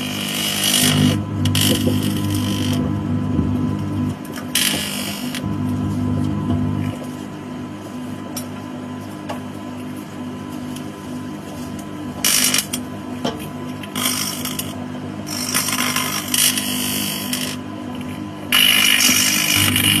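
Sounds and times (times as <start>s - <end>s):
microwave oven humming: 0.0s - 20.0s
electrical arcing crackle: 0.4s - 2.9s, 19.0s - 20.0s.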